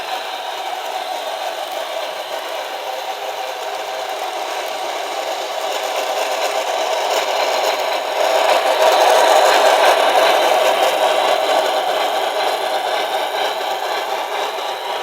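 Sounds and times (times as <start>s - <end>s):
model train rattling on track: 0.0s - 15.0s.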